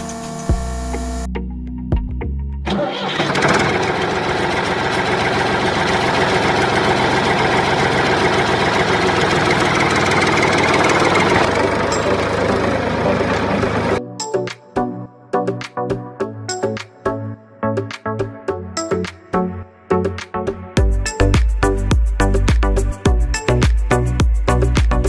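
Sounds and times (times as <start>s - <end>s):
engine chugging: 2.7s - 14.0s.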